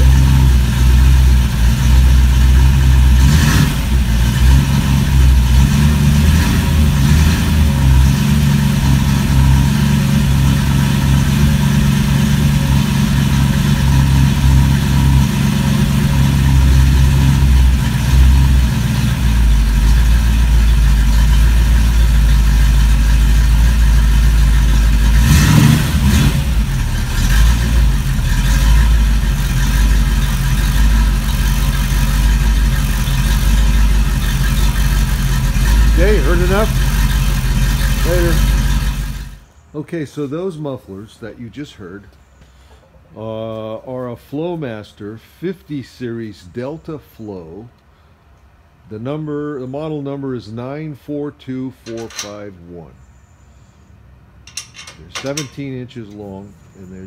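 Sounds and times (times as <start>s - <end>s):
car engine idling: 0.0s - 39.7s.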